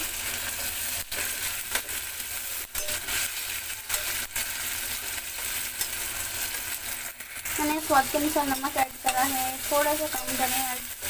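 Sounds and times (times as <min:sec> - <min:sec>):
vegetables sizzling in hot oil: 0:00.0 - 0:11.0
metal spatula stirring: 0:02.7 - 0:06.0, 0:07.4 - 0:11.0.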